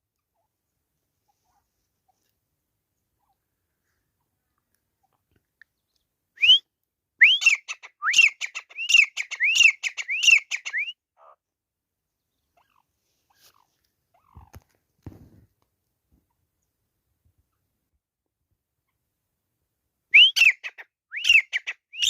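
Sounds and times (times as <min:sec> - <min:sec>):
bird whistling calls: 0:07.2 - 0:11.0, 0:20.2 - 0:22.0.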